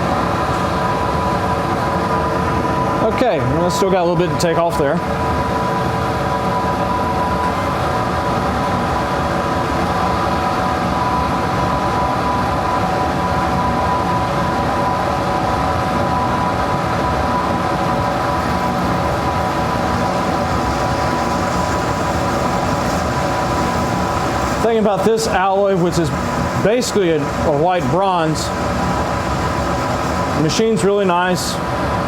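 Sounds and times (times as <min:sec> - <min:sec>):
metal lathe whining: 0:16.8 - 0:31.9.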